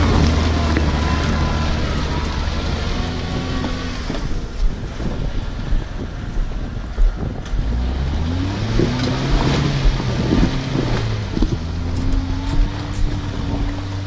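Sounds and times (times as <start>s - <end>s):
off-road vehicle engine revving: 0.0s - 14.0s
vehicle knocks and clatter: 8.6s - 14.0s.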